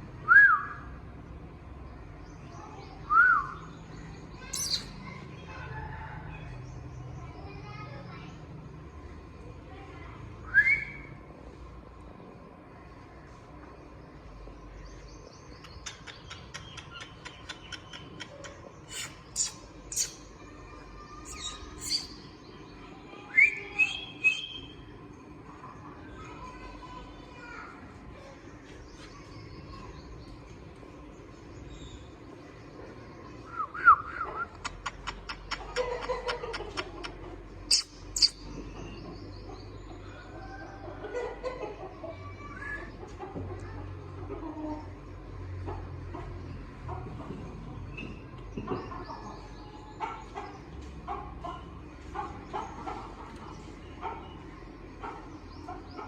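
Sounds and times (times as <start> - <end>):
faint chirping: 15.6 - 22.5
parrot harsh calls: 21.3 - 22.1.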